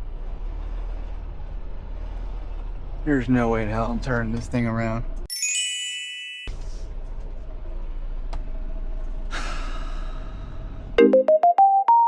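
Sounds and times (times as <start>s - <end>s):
truck engine humming: 0.0s - 5.3s, 6.5s - 11.8s
bright chime: 5.3s - 6.5s.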